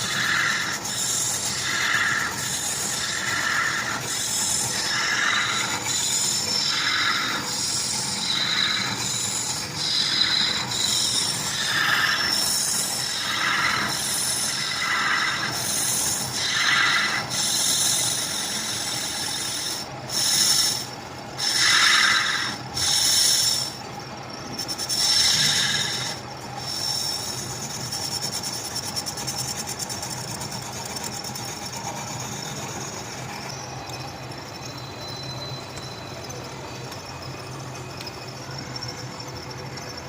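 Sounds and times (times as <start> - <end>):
metal rasping strokes: 0.0 - 23.8.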